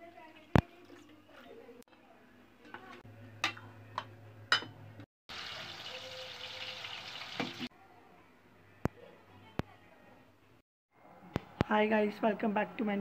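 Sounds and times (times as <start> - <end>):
food sizzling in hot oil: 5.3 - 7.7.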